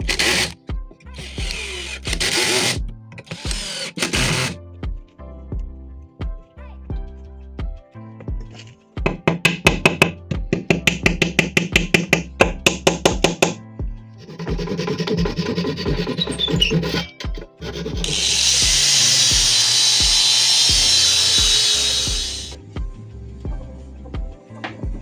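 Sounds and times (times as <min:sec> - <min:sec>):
high-pitched power tool: 0:00.0 - 0:00.6, 0:01.2 - 0:04.6, 0:17.7 - 0:22.6
rasping strokes on wood: 0:00.0 - 0:00.6, 0:14.2 - 0:22.6
background music: 0:00.0 - 0:25.0.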